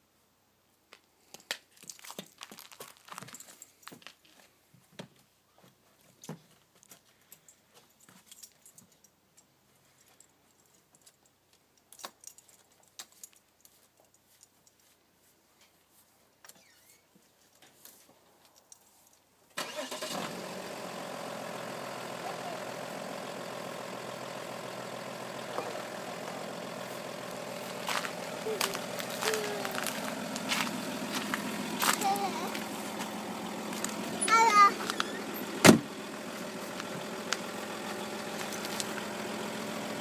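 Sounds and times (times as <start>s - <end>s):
car engine starting and idling: 19.6s - 40.0s.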